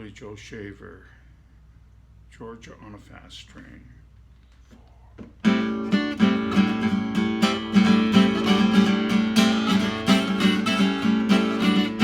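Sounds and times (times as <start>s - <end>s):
acoustic guitar strumming: 5.4s - 12.0s.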